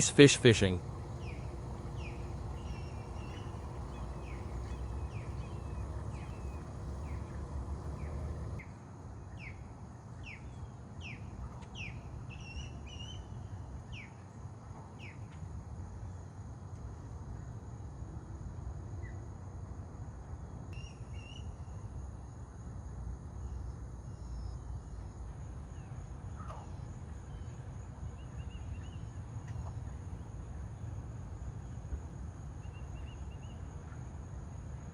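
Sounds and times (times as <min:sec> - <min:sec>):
bird chirping: 0:00.0 - 0:08.6
low background rumble: 0:00.0 - 0:08.6
warbled bird notes: 0:00.0 - 0:08.6.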